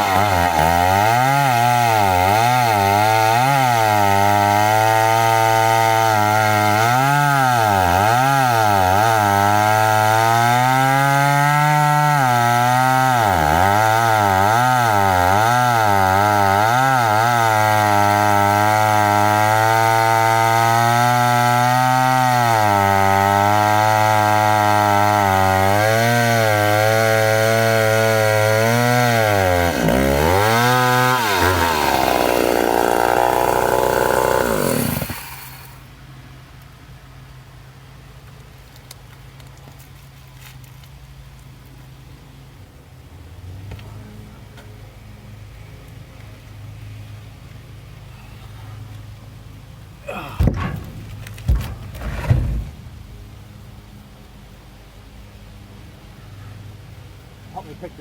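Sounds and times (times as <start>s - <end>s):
chainsaw cutting wood: 0.0s - 35.9s.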